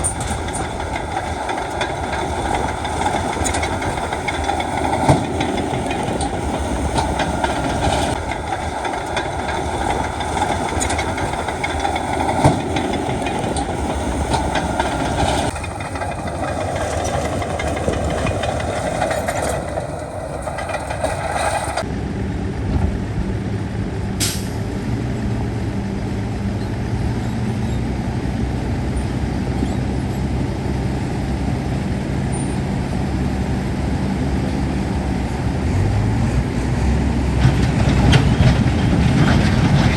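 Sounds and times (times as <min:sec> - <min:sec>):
sharp metallic clanks: 0:00.0 - 0:21.8
heavy diesel machinery running: 0:00.0 - 0:39.9.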